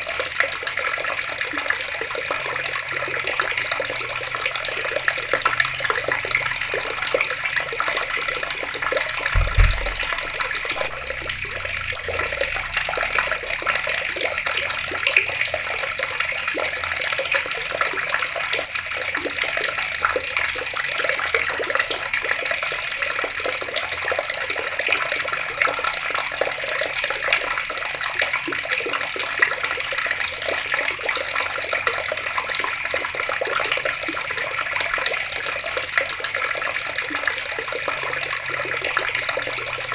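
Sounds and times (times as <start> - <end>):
water pouring from tap: 0.0 - 39.9
low thump: 9.4 - 12.6.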